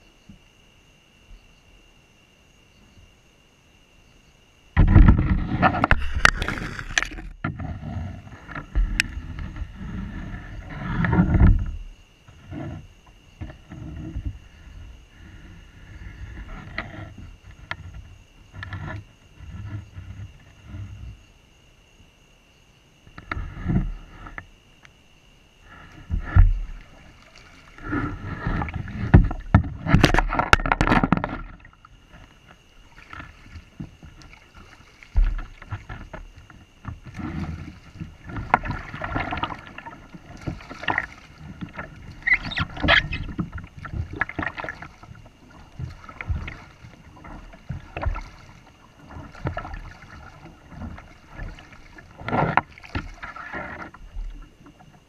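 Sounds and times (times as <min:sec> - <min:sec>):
knocks against kayak hull: 0:04.8 - 0:07.8, 0:27.8 - 0:31.7
water splashing: 0:04.8 - 0:11.6, 0:25.7 - 0:55.0.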